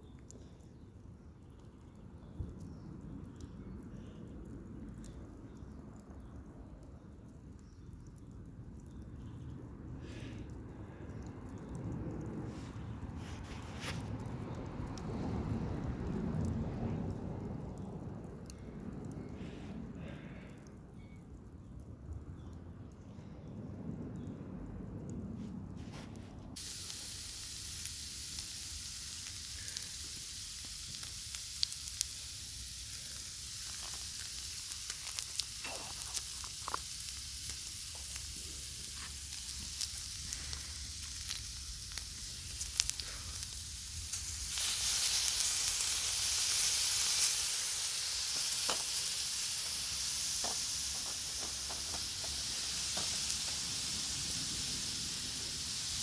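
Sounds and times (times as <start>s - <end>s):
oil spitting pops: 26.0s - 56.0s
food sizzling in a pan: 26.6s - 56.0s.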